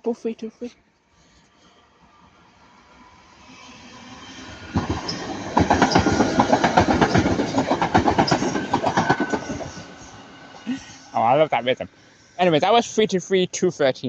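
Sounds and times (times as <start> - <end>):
train wheels clattering: 3.5 - 10.6.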